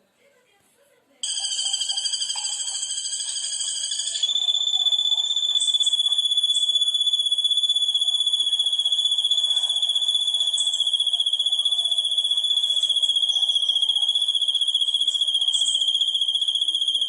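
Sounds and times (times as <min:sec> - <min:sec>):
insect trilling: 0:04.0 - 0:17.0.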